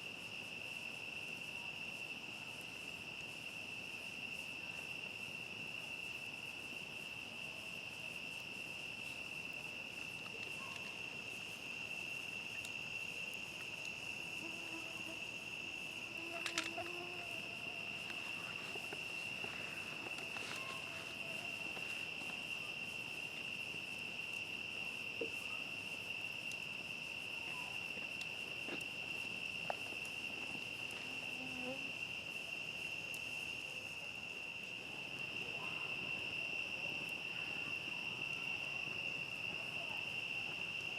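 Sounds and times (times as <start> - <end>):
crickets chirping: 0.0 - 40.9
campfire popping: 7.8 - 31.4.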